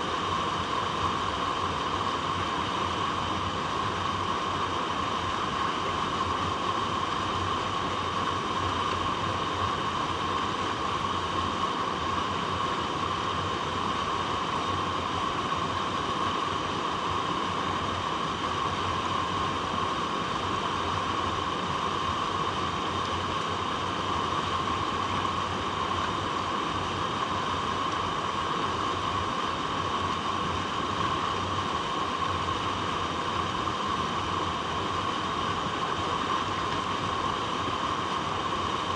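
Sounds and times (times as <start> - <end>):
water rushing over rocks: 13.5 - 38.9.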